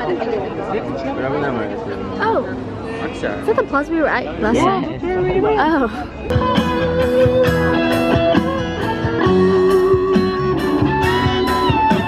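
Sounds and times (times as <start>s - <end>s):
electric guitar music with beat: 6.3s - 12.0s.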